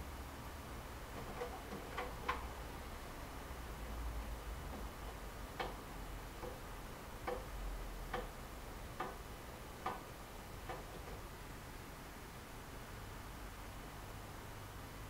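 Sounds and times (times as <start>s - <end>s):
washing machine running: 0.8s - 11.6s.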